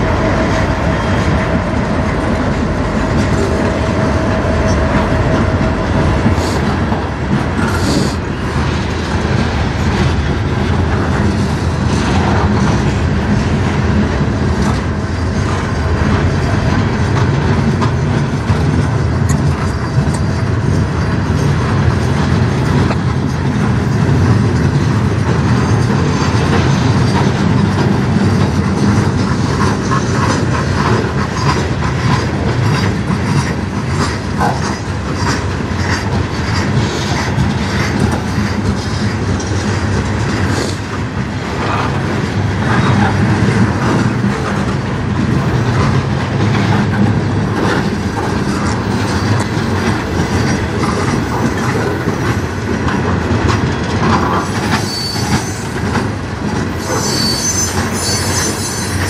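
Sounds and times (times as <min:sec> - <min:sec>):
wheels clattering over rail joints: 0:00.0 - 0:59.0
wheel squeal: 0:54.6 - 0:55.8, 0:56.8 - 0:59.0.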